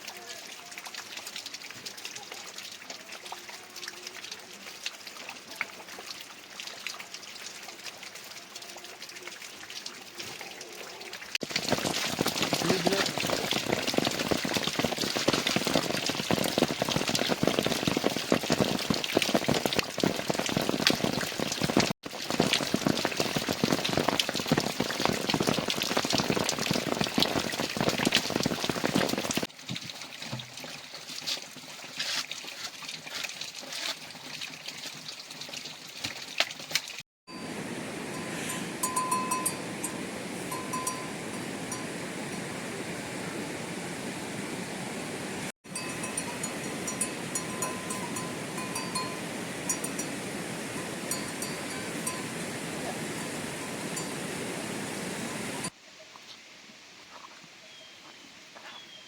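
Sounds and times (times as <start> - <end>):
heavy rain pattering: 11.4 - 29.5.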